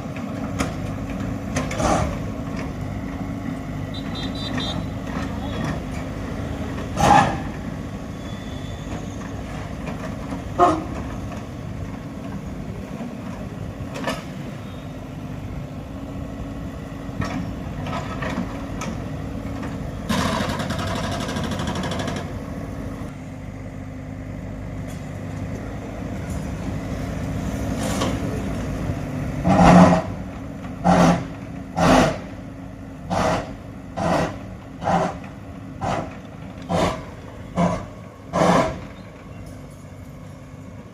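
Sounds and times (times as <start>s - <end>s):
heavy engine running: 0.0s - 40.9s.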